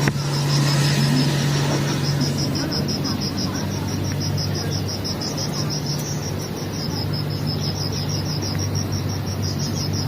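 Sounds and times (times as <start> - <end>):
crickets chirping: 0.0 - 10.0
low steady hum: 0.0 - 10.0.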